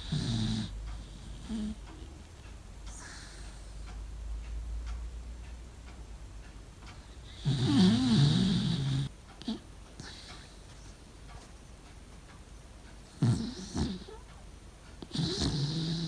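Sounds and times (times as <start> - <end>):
dog snoring: 0.0 - 2.2, 7.2 - 10.5, 13.1 - 14.3, 15.0 - 16.0
dog snorting: 0.0 - 2.2, 7.2 - 10.5, 13.1 - 14.3, 15.0 - 16.0.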